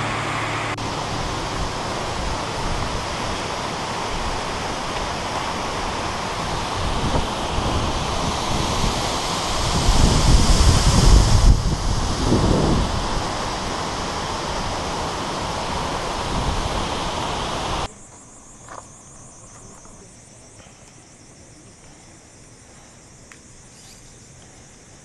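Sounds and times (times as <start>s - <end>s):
loud even rushing noise: 0.0s - 17.9s
insects chirring: 0.0s - 25.0s
faint ticks: 21.6s - 24.6s.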